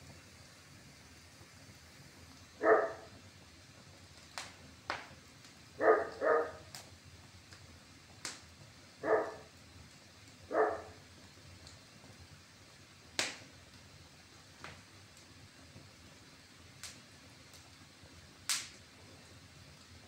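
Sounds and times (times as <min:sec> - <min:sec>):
wood fire popping: 0:00.0 - 0:20.0
dog barking: 0:02.6 - 0:03.1, 0:05.8 - 0:06.7, 0:09.0 - 0:09.5, 0:10.5 - 0:11.0.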